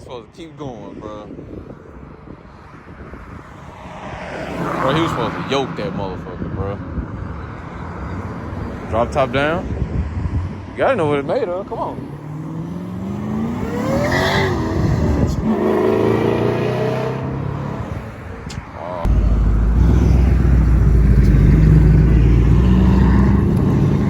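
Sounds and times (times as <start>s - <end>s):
car engines revving: 11.9s - 18.4s, 19.0s - 24.0s
deep steady engine rumble: 19.0s - 24.0s.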